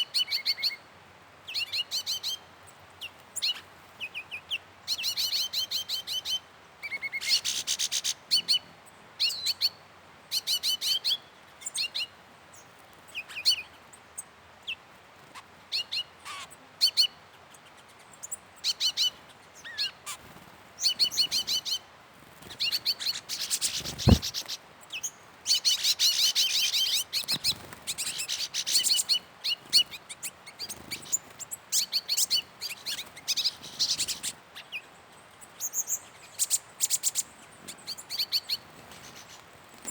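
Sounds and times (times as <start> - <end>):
songbird singing: 0.0 - 39.9
sharp knock: 24.0 - 24.3.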